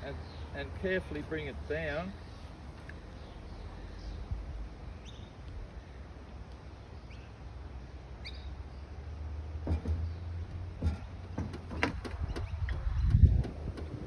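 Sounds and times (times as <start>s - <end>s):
high rising bird chirps: 5.0s - 5.4s, 8.2s - 8.9s
dull knocks: 9.6s - 14.0s.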